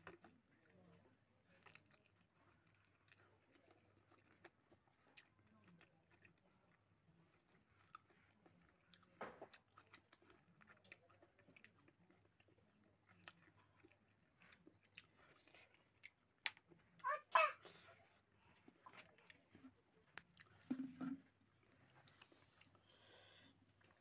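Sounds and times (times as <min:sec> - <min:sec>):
person chewing: 0:01.5 - 0:06.4, 0:07.3 - 0:16.6, 0:18.0 - 0:20.9.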